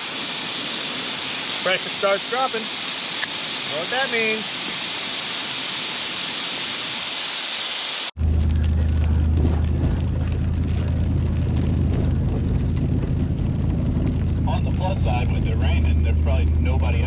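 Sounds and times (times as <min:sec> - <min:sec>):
steady hiss: 0:00.0 - 0:08.2
truck engine drone from cab: 0:08.2 - 0:17.0.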